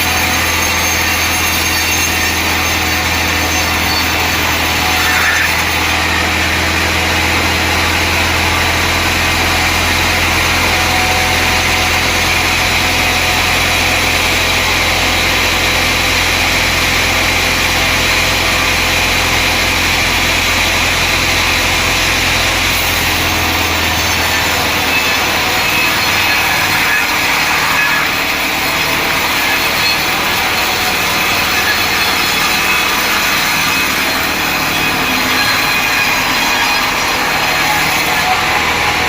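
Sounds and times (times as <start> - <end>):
sawmill machinery running: 0.0 - 39.0.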